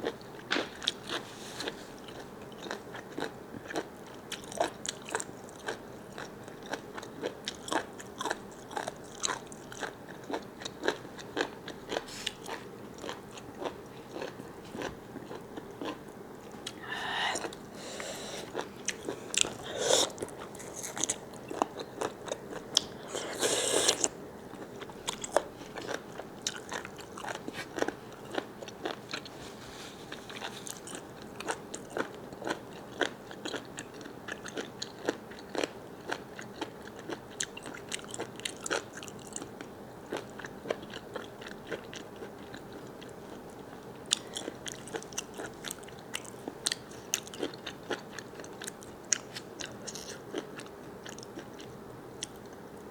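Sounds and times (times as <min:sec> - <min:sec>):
crunchy bites and wet chewing: 0:02.0 - 0:29.3.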